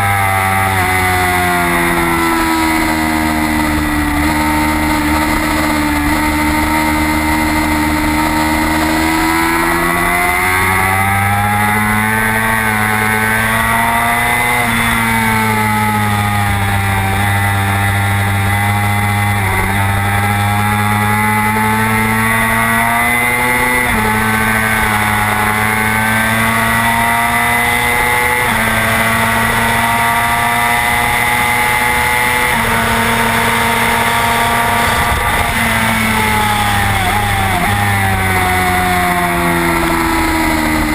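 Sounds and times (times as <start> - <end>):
motorcycle engine at high revs: 0.0 - 40.9
wind noise: 31.0 - 40.9.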